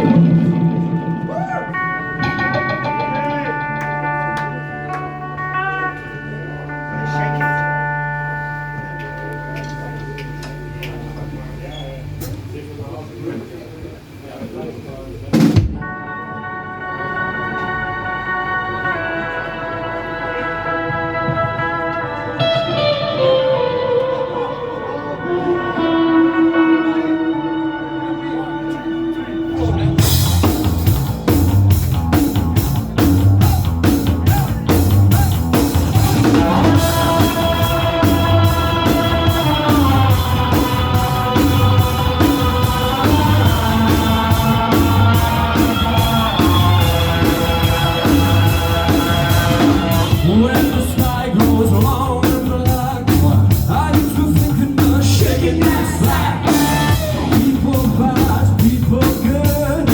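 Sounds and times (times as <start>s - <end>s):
drum-kit beat: 0.0s - 5.2s, 29.6s - 59.9s
electric guitars: 0.0s - 12.6s, 15.3s - 59.9s
person singing: 15.8s - 30.8s, 33.4s - 59.9s.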